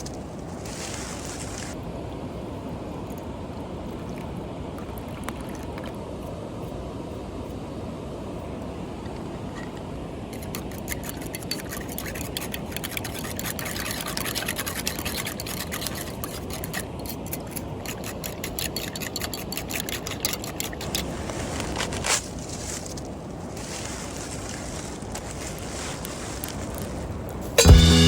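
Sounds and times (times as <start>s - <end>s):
rushing water: 0.0s - 21.9s
wind: 0.0s - 28.0s.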